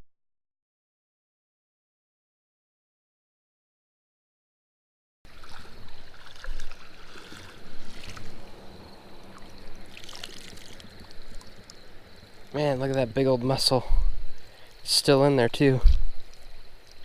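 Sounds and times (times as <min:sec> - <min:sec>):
footsteps wading through water: 0:05.3 - 0:11.8
creek current rushing: 0:05.3 - 0:17.0.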